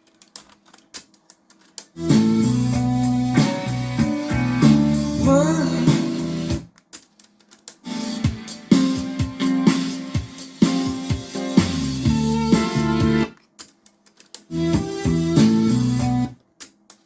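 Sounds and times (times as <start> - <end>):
pop music from car stereo: 3.3 - 6.6.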